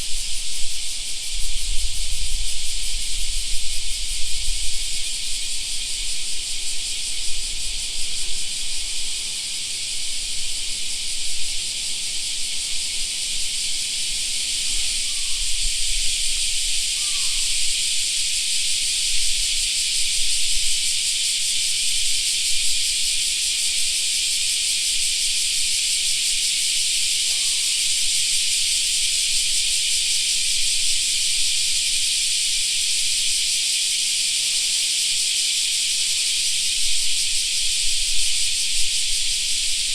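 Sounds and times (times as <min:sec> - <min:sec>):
cicadas chorus: 0:00.0 - 0:39.9.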